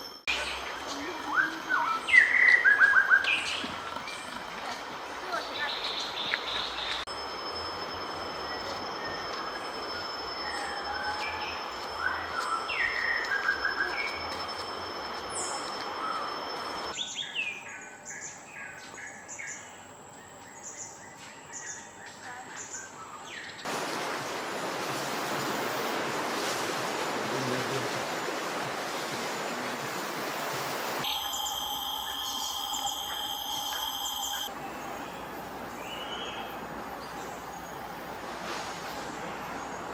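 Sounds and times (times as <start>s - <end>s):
steady high whine: 7.1s - 16.9s, 31.0s - 34.6s.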